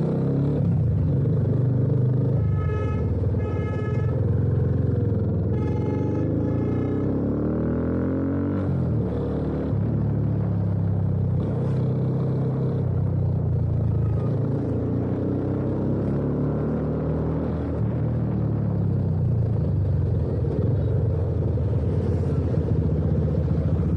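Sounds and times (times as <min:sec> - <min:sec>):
motorcycle engine accelerating: 0:04.4 - 0:23.9.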